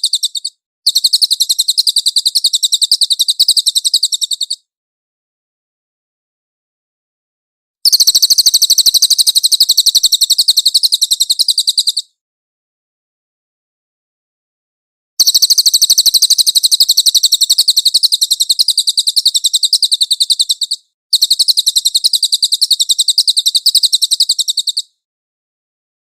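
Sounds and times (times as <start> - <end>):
bird singing high trills: 15.2 - 25.0.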